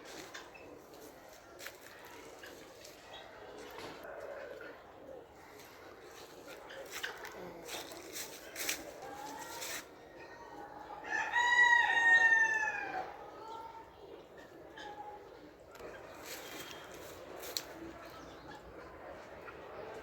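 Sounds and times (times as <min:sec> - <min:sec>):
rooster crowing: 0:11.0 - 0:13.0.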